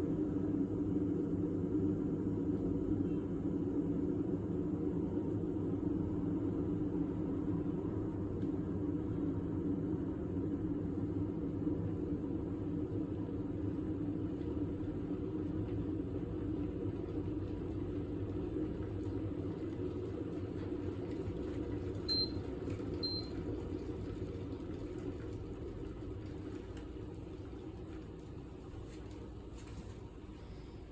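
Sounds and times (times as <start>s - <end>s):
kettle boiling water: 0.0s - 30.9s
kettle beeps: 22.0s - 23.4s.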